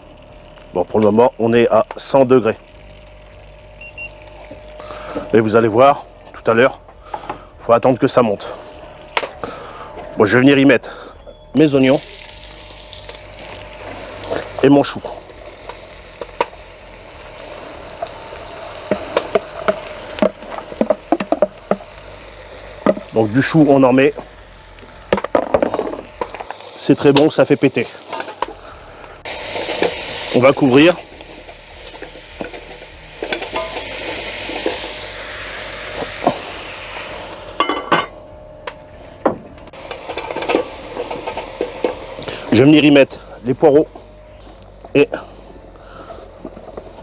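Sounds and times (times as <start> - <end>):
vegetables sizzling in a pot: 0.0 - 7.6, 11.5 - 39.0, 39.7 - 47.0
ringing metallic clank: 33.3 - 34.0, 37.6 - 42.0.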